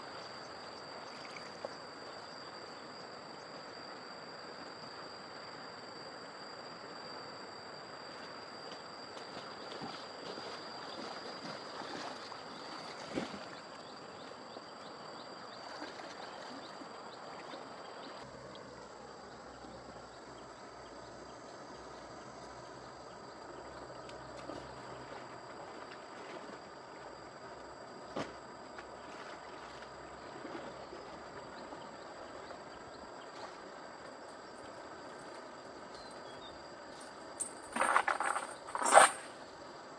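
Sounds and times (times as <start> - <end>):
river water splashing: 9.2 - 14.4, 15.6 - 18.3, 24.4 - 35.9, 37.0 - 39.9.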